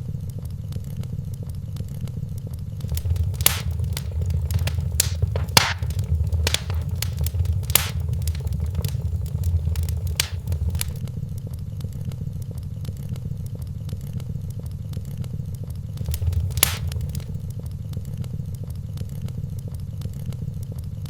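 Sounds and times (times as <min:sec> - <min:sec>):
fire pops: 0:02.8 - 0:11.0, 0:16.0 - 0:17.4
steady low rumble: 0:02.8 - 0:11.0, 0:16.0 - 0:17.4
wood fire crackling: 0:02.8 - 0:11.0, 0:16.0 - 0:17.4.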